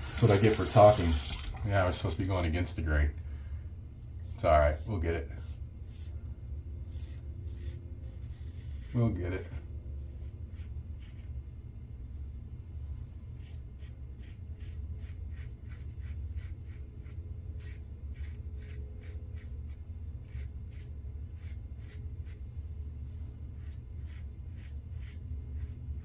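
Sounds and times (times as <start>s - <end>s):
steady low hum: 0.0s - 26.0s
razor scraping stubble: 4.2s - 6.2s, 6.8s - 11.4s, 13.4s - 22.5s, 23.5s - 26.0s.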